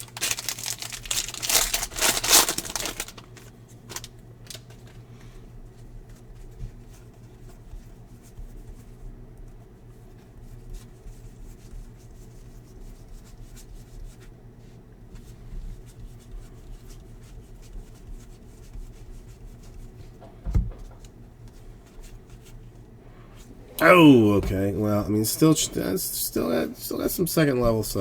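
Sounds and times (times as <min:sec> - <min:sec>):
trading cards rustling: 0:00.0 - 0:04.7
steady low hum: 0:20.2 - 0:28.0.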